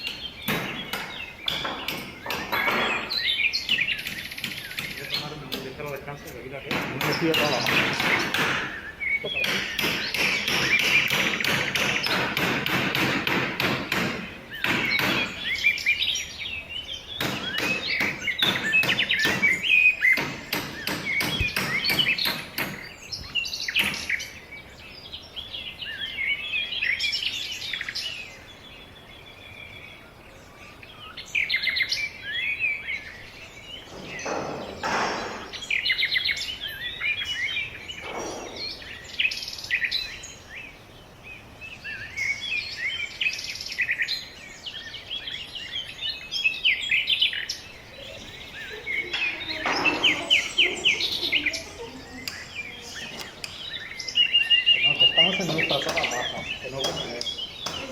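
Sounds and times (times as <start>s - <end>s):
sharp taps and knocks: 0.0s - 15.6s, 17.2s - 24.2s, 33.8s - 35.7s, 52.2s - 53.7s, 55.1s - 57.9s
small birds chirping: 0.0s - 57.9s.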